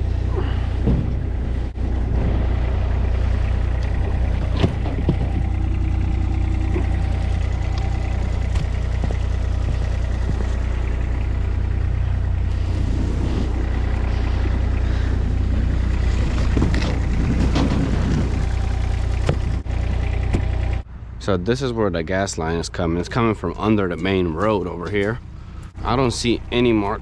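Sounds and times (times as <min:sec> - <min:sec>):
heavy vehicle engine running: 0:00.0 - 0:27.0
knocking and clattering: 0:16.0 - 0:20.8.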